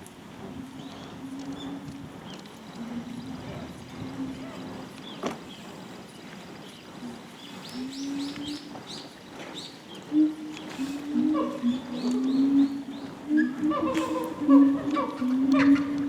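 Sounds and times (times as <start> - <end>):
murmur of voices: 2.7 - 6.0.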